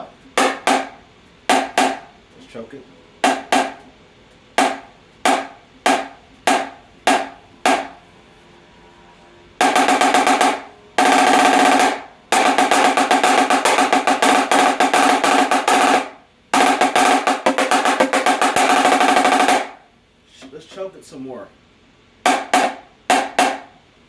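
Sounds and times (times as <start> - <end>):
choked snare drum strikes: 0.0 - 2.2, 3.2 - 3.9, 4.6 - 8.0, 9.6 - 19.8, 22.2 - 23.8
fast snare drum rolls: 0.0 - 2.2, 3.2 - 3.9, 4.6 - 8.0, 9.6 - 20.6, 22.2 - 23.8.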